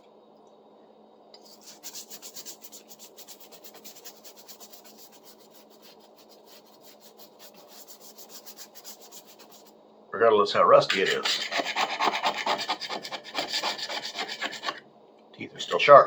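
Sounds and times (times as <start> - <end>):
rasping strokes on saw blade: 11.0 - 14.8.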